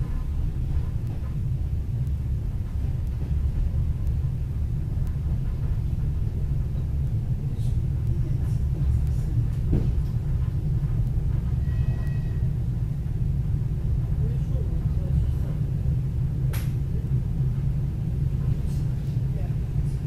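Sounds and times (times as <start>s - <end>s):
train carriage rumbling: 0.0s - 20.0s
faint high tone: 11.6s - 12.4s.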